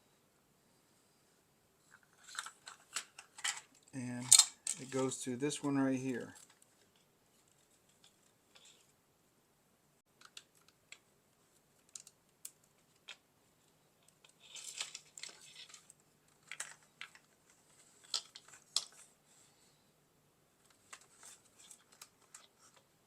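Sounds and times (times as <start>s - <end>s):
plastic parts scraping: 1.9s - 5.2s, 6.1s - 8.9s, 14.0s - 19.1s, 20.6s - 22.9s
plastic parts clicking: 2.2s - 5.0s, 10.2s - 11.0s, 11.8s - 13.2s, 14.0s - 17.3s, 18.0s - 19.1s.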